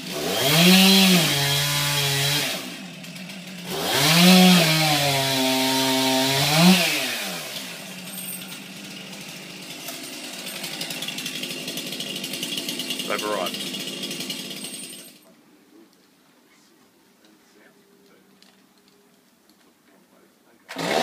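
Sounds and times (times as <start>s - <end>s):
chainsaw idling: 0.0s - 15.3s, 20.7s - 21.0s
chainsaw revving: 0.0s - 15.3s, 20.7s - 21.0s.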